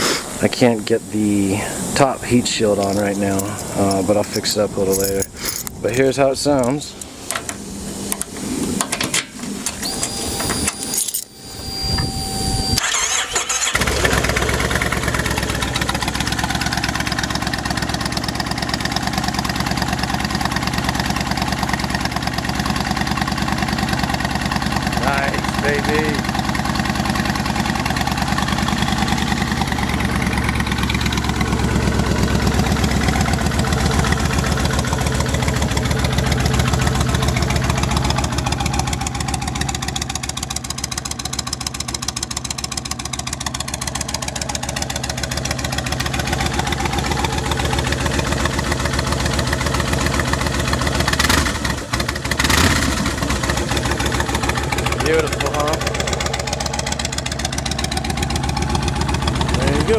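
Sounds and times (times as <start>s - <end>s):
motorcycle engine idling: 13.6s - 59.9s.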